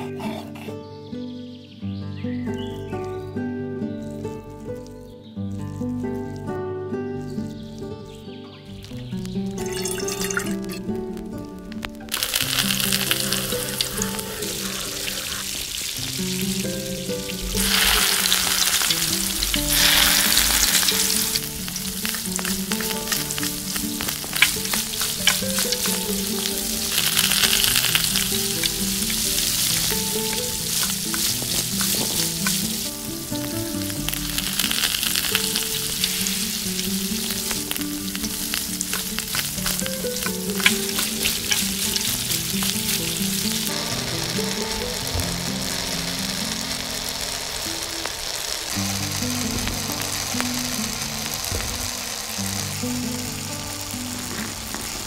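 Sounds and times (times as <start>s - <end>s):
vegetables sizzling in a pan: 7.2s - 55.0s
spoon stirring and clicking on pan: 17.6s - 32.9s, 38.5s - 43.4s.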